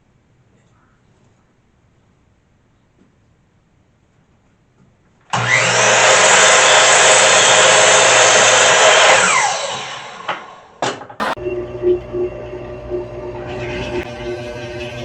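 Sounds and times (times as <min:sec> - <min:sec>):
miter saw cutting a board: 0:05.4 - 0:10.3.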